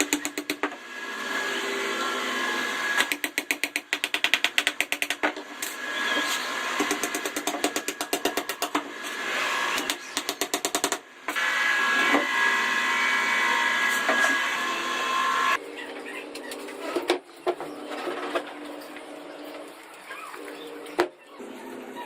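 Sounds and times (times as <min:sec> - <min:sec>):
woodworking power tool whining: 0:00.0 - 0:03.1, 0:05.5 - 0:08.1, 0:11.3 - 0:15.6.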